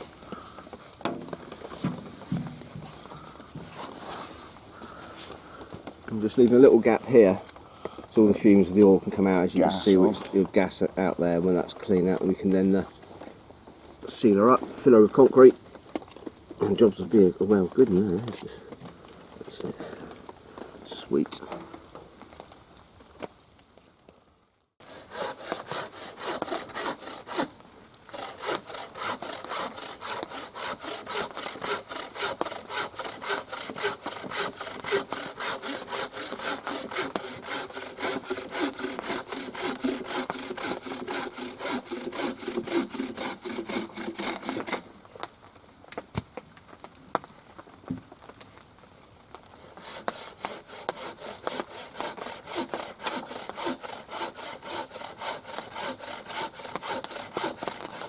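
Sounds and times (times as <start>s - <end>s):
hand saw cutting wood: 24.8s - 27.5s, 28.1s - 44.9s, 49.6s - 58.0s.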